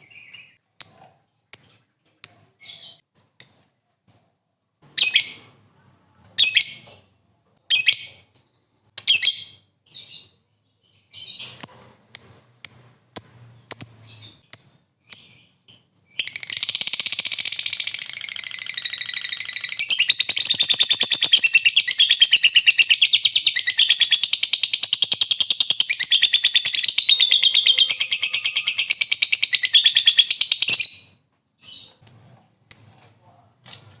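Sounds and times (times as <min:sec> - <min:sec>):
bird chirping: 0:00.0 - 0:34.0
bird chattering trill: 0:16.2 - 0:30.9.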